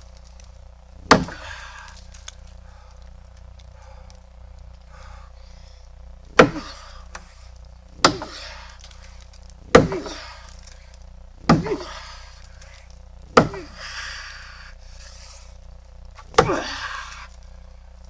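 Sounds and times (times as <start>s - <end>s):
axe chopping into branch: 1.0s - 1.9s, 6.3s - 7.3s, 8.0s - 9.0s, 9.7s - 10.8s, 11.4s - 12.2s, 13.3s - 13.8s, 16.2s - 16.9s.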